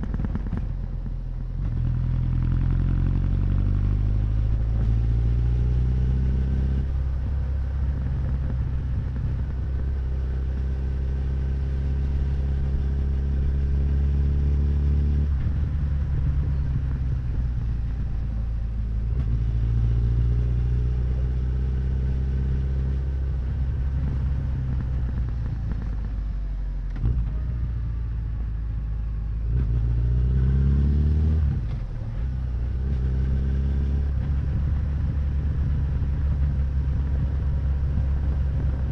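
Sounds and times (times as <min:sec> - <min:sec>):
motorcycle engine revving: 0:00.0 - 0:26.2.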